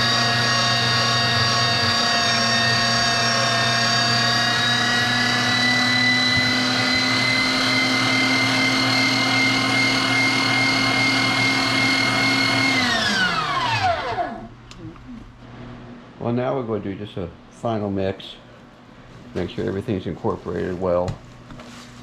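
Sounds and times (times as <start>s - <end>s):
meat grinder motor whining: 0.0s - 14.5s.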